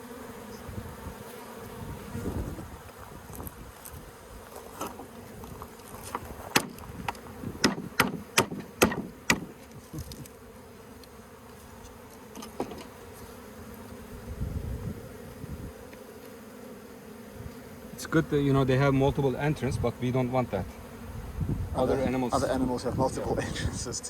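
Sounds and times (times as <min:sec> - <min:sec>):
bees buzzing: 0:00.0 - 0:24.0
sharp knocks: 0:06.5 - 0:06.8, 0:07.6 - 0:09.6.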